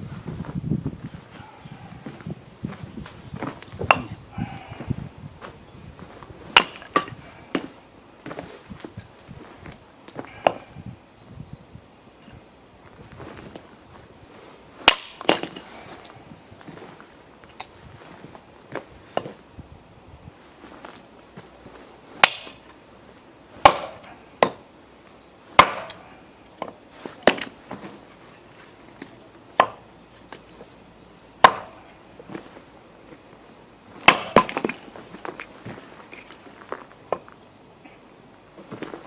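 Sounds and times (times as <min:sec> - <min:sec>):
axe chopping firewood: 0:03.1 - 0:05.5, 0:06.5 - 0:08.4, 0:10.1 - 0:10.7, 0:14.8 - 0:16.2, 0:22.2 - 0:22.8, 0:23.6 - 0:24.7, 0:25.5 - 0:28.0, 0:29.0 - 0:29.8, 0:31.4 - 0:31.9, 0:34.0 - 0:35.5
split wood pieces clattering: 0:06.1 - 0:07.8, 0:14.8 - 0:17.8, 0:22.2 - 0:22.8, 0:25.6 - 0:30.5, 0:34.0 - 0:37.3.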